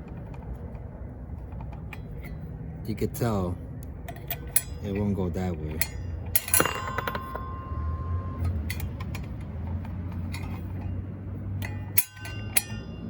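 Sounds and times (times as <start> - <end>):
low steady hum: 0.0 - 13.0
saw blade ringing: 4.5 - 9.0, 11.6 - 13.0.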